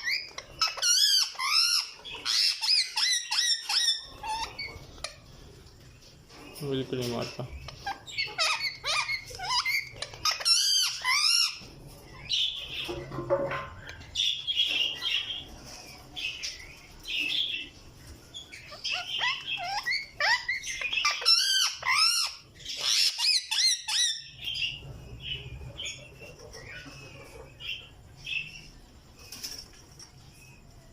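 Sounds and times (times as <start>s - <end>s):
parakeet squawking: 0.0s - 5.3s, 7.5s - 11.7s, 18.5s - 24.8s
parakeet chirps: 0.0s - 5.4s, 7.3s - 12.9s, 18.3s - 29.8s.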